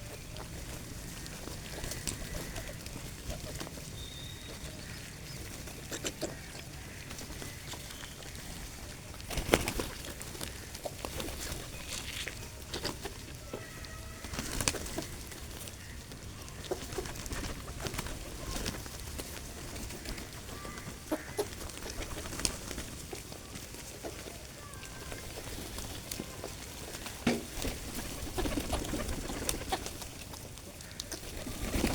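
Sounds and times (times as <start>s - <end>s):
bird chirps and calls: 3.8s - 6.7s.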